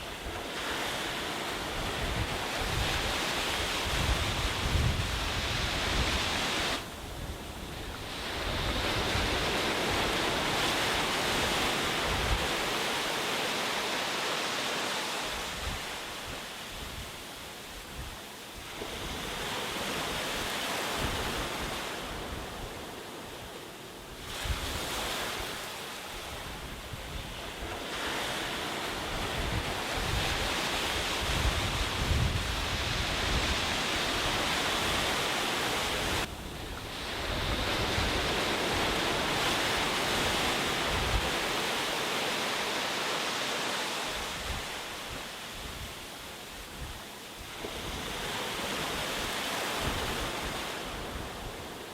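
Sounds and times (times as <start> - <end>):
sea waves washing up beach: 0.0 - 51.9
wind buffeting microphone: 0.2 - 12.8, 28.4 - 41.8.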